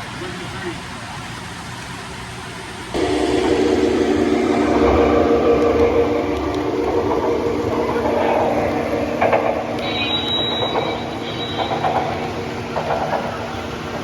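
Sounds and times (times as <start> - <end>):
model train electric hum: 0.0 - 14.0
wheels clattering on rails: 3.0 - 14.0.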